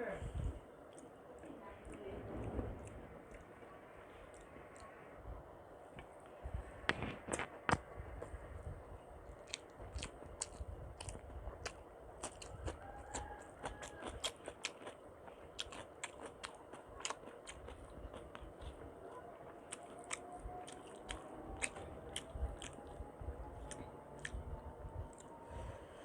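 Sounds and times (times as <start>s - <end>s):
person chewing food: 2.8s - 5.1s, 6.2s - 26.0s.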